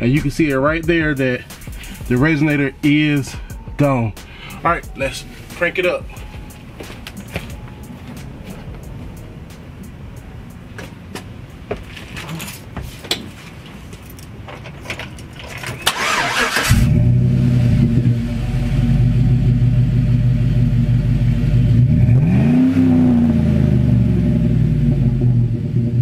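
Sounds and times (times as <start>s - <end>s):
car engine idling: 0.0s - 11.7s, 15.9s - 26.0s
starter motor cranking: 15.8s - 17.0s
engine revving: 15.9s - 26.0s.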